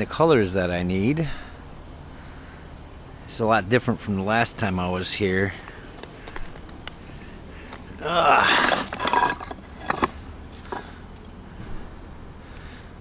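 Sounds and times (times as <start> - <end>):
stone pieces clinking: 8.2 - 10.9
stones scraping clatter: 8.2 - 11.0.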